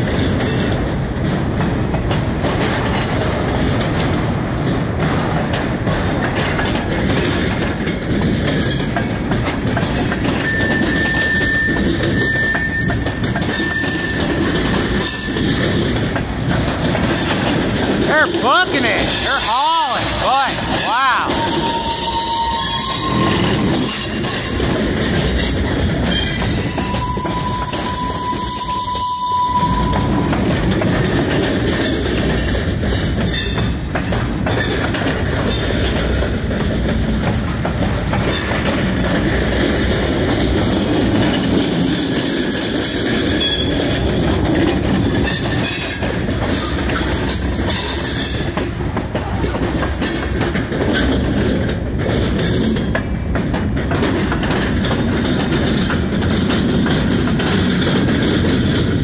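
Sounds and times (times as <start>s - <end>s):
train wheels rumbling on rail: 0.0s - 59.0s
wheels clickety-clack: 0.0s - 59.0s
high-pitched wheel squeal: 10.4s - 15.5s, 20.8s - 24.4s, 26.1s - 30.2s.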